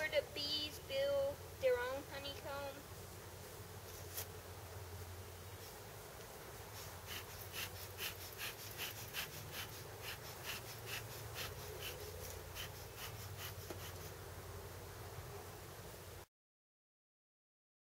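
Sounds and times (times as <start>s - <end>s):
bellows puffing air: 6.7s - 14.1s.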